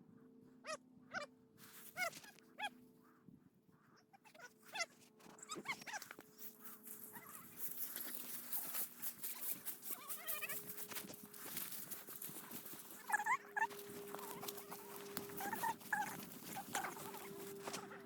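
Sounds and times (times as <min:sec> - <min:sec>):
rustling through tall grass: 0:06.3 - 0:18.0
dog whining: 0:12.1 - 0:18.0.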